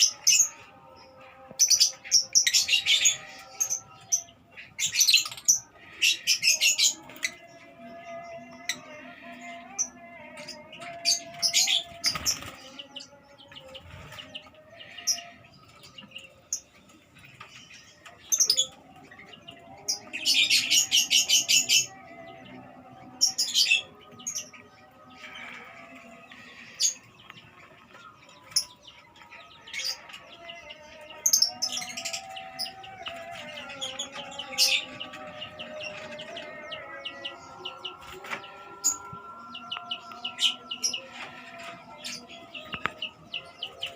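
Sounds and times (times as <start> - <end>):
birds chattering rapidly: 0.0 - 0.8, 1.4 - 43.9
lovebirds chirping shrilly: 11.2 - 12.7.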